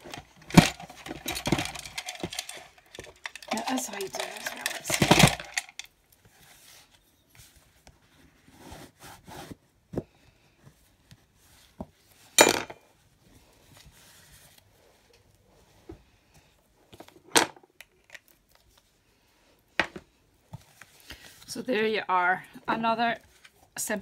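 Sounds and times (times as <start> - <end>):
objects set down knocking: 0.0 - 5.8, 12.4 - 12.8, 17.3 - 17.6.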